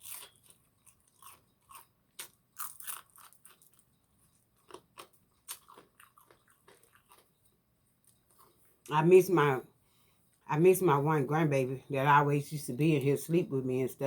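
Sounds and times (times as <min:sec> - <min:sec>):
crunching fried food: 0:00.0 - 0:08.9.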